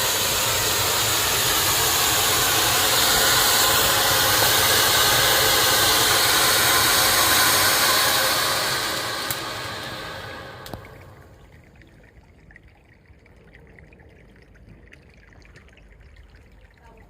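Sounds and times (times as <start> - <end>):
firework hissing: 0.0 - 11.4.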